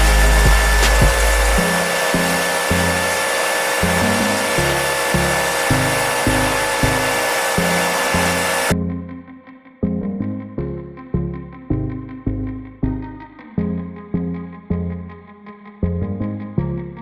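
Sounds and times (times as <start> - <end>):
workshop tool hissing: 0.0 - 8.7
background music with steady beat: 0.0 - 15.1.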